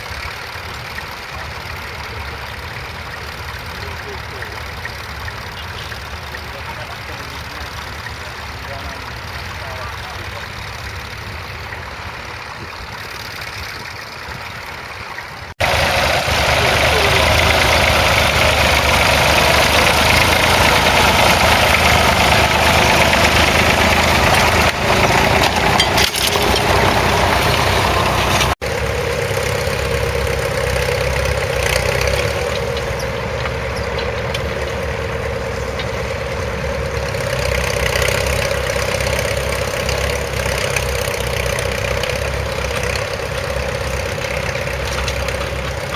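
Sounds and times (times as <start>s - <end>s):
tractor engine under load: 0.0s - 45.9s.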